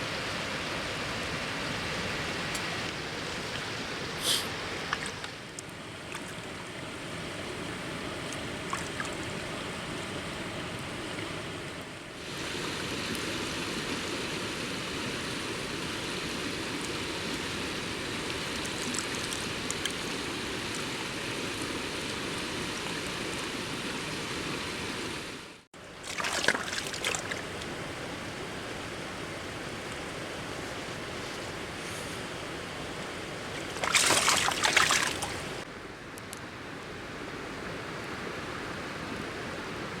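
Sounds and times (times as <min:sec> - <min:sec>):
river rushing over stones: 0:32.3 - 0:35.7.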